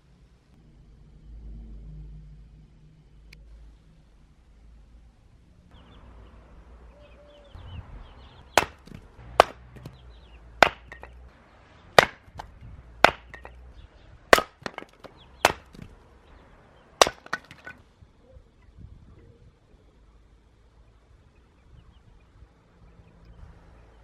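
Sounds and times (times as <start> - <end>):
hatchet chopping wood: 8.6 - 10.0, 10.6 - 11.2, 12.0 - 13.5, 14.3 - 15.9, 17.0 - 17.8
wood rattling: 8.6 - 10.0, 10.6 - 11.2, 12.0 - 13.6, 14.3 - 15.9, 17.0 - 17.8.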